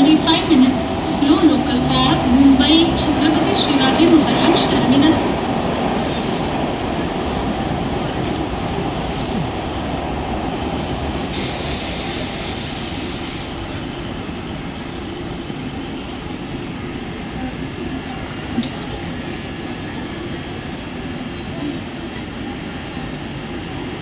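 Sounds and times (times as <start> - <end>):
electric train rumbling: 0.0 - 24.0
hiss burst: 11.3 - 13.6.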